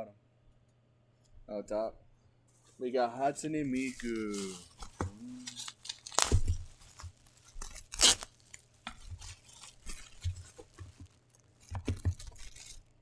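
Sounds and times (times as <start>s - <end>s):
packaging rustling and clicking: 3.7s - 13.0s
packaging tearing crackle: 3.7s - 13.0s.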